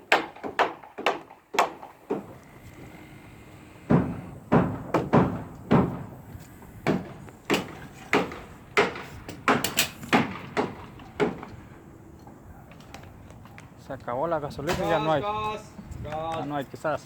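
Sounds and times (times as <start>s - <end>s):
hammer knocking on wood: 0.0s - 11.6s.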